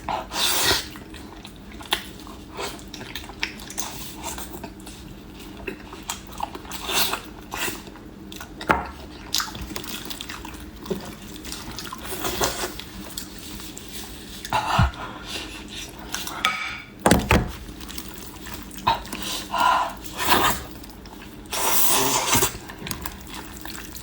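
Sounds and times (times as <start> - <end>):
wet chewing and smacking: 0.9 - 16.4, 17.6 - 24.0.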